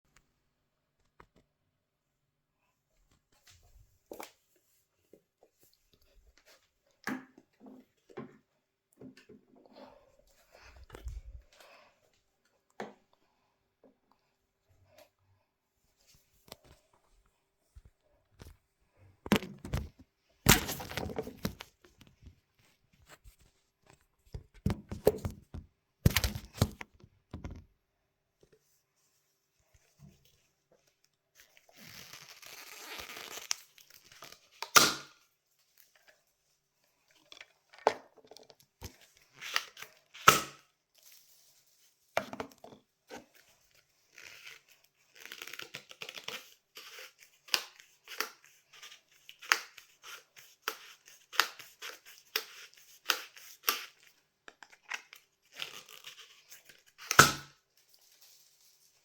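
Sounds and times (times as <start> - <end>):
crinkling and crackling: 16.1 - 27.7.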